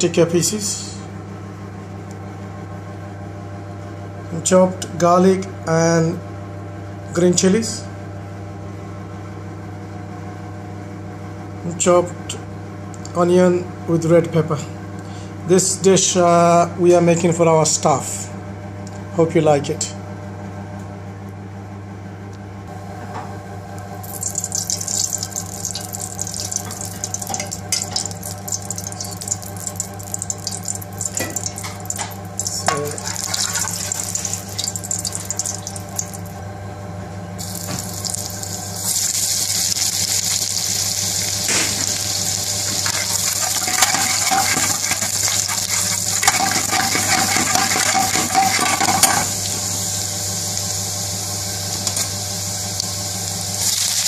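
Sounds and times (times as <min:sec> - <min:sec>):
oil sizzling in a frying pan: 0:24.0 - 0:36.3, 0:37.4 - 0:51.2, 0:51.8 - 0:54.0.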